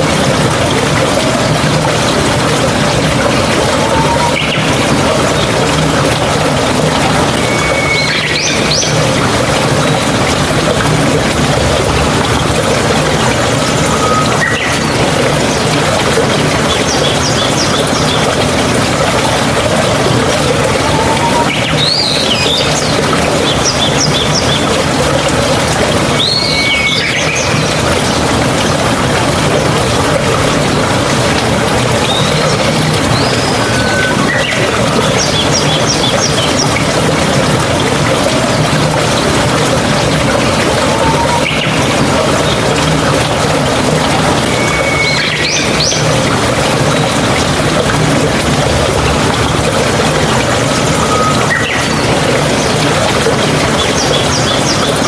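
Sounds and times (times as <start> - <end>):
running water: 0.0 - 55.0
stream trickling: 0.0 - 55.0
bird calling high notes: 7.3 - 8.8, 32.1 - 34.8.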